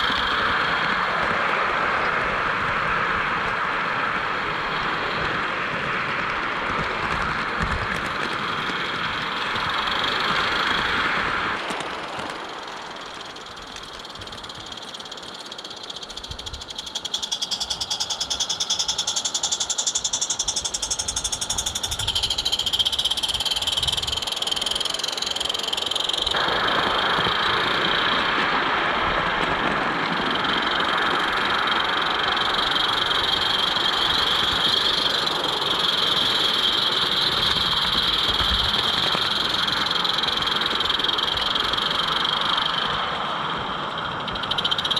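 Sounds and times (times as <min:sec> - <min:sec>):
steam locomotive exhaust beats: 0:00.0 - 0:44.9
train wheel noise: 0:00.0 - 0:44.9
steady high-pitched tone: 0:12.7 - 0:44.9.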